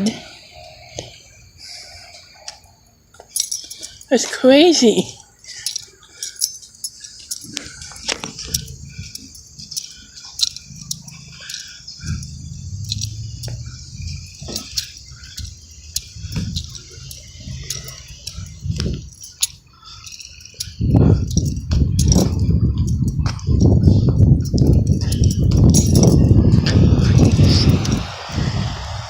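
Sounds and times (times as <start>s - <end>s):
keys jangling: 1.5s - 28.4s
small irregular clicks: 5.5s - 26.2s
low rumble: 12.0s - 19.2s, 20.8s - 29.0s.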